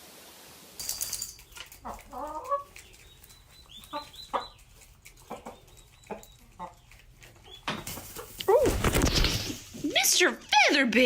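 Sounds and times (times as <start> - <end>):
chicken clucking: 1.5 - 8.7.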